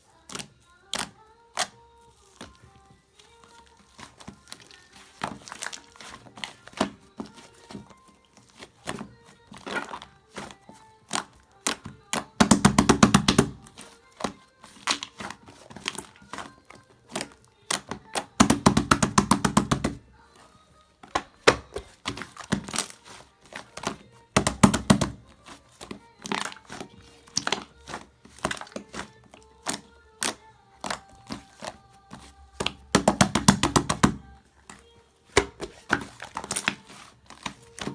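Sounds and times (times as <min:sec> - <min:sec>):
slime squished by hand: 0:03.2 - 0:20.0, 0:21.1 - 0:34.3, 0:35.3 - 0:37.9.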